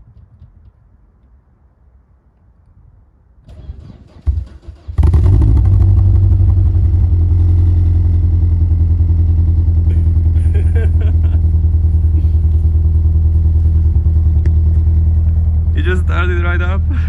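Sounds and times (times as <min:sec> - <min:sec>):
car engine idling: 0:05.0 - 0:17.0.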